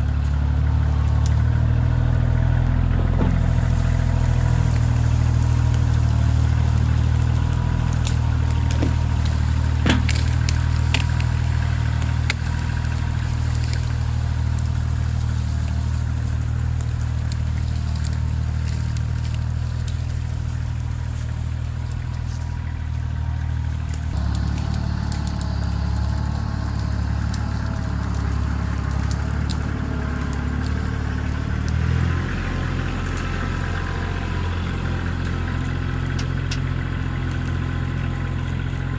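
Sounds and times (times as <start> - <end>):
tractor diesel engine running: 0.0 - 38.9
knocks and clatter: 1.0 - 14.3.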